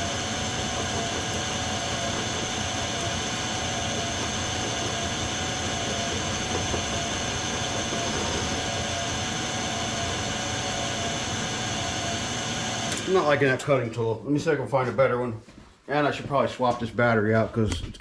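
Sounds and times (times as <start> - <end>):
metal lathe whining: 0.0 - 13.4.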